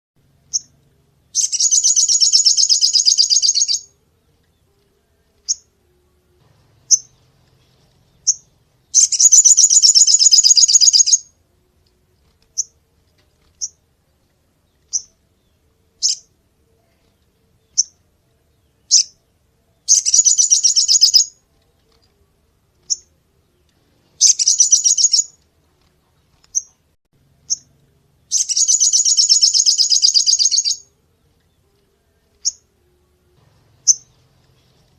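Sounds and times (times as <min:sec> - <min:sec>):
songbird high-pitched trills: 0:00.4 - 0:00.8, 0:01.4 - 0:11.4, 0:14.7 - 0:17.0, 0:19.8 - 0:21.4, 0:22.8 - 0:23.6, 0:24.2 - 0:25.4, 0:27.4 - 0:33.0, 0:33.8 - 0:34.9.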